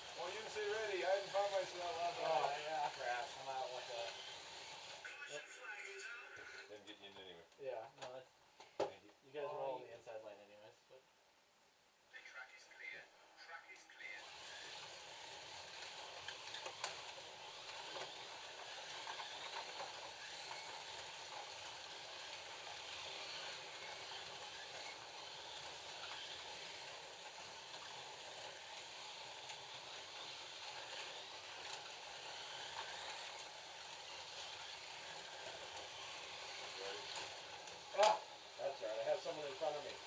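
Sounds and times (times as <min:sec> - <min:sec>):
slot car motors buzzing: 0:00.0 - 0:05.4, 0:14.2 - 0:40.0.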